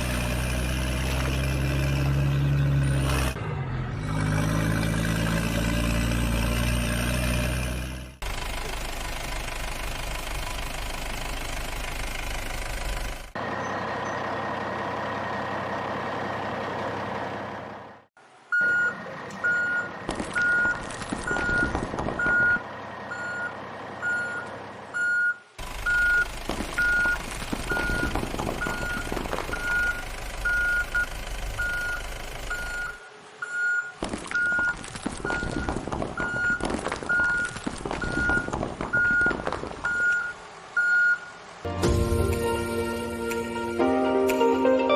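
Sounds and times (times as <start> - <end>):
truck engine running: 0.0 - 44.5
reversing alarm beeping: 39.9 - 41.3.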